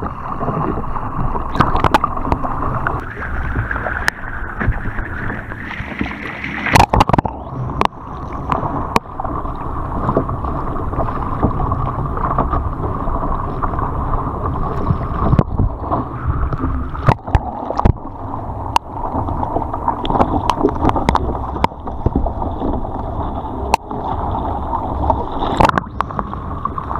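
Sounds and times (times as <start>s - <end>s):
low rumble: 0.0s - 26.9s
water splashing around kayak: 0.0s - 26.9s.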